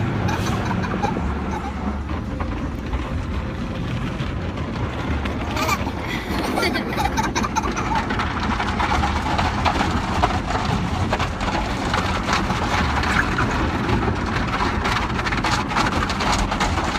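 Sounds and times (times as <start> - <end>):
car wash water drumming on car: 0.0 - 16.9
steady low rumble: 0.0 - 16.9.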